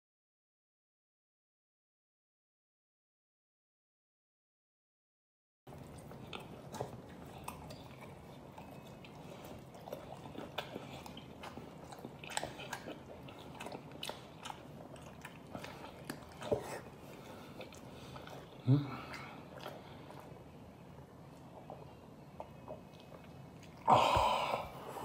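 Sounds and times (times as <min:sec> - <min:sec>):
low steady hum: 0:05.7 - 0:25.0
man chewing: 0:05.7 - 0:25.0.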